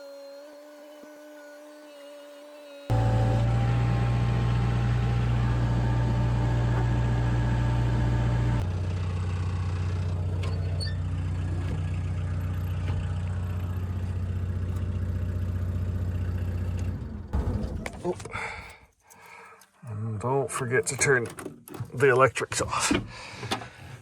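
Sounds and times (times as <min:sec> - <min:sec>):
diesel engine running: 0:02.9 - 0:17.9.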